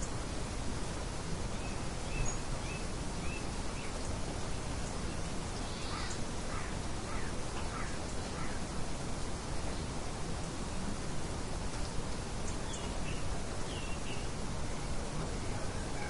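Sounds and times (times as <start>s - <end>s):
wind-like hiss: 0.0s - 16.0s
small birds chirping: 1.6s - 8.7s, 11.7s - 14.9s.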